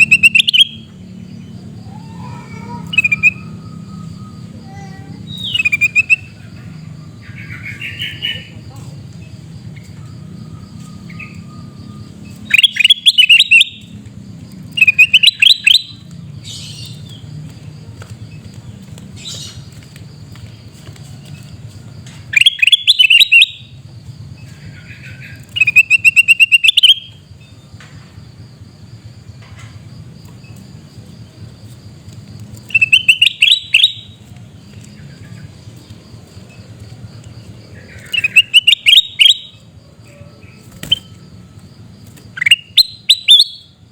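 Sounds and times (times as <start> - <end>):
bird calling: 0.0 - 14.0, 14.6 - 17.7, 18.3 - 27.7, 32.5 - 41.2, 42.2 - 43.9.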